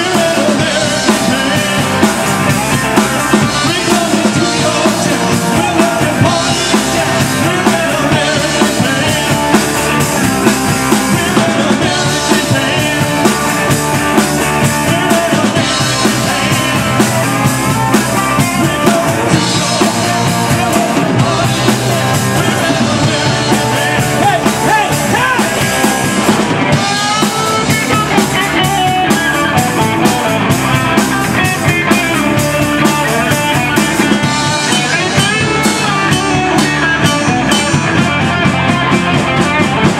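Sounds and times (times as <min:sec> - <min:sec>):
drum kit steady beat: 0:00.0 - 0:39.9
rock band playing live: 0:00.0 - 0:39.9.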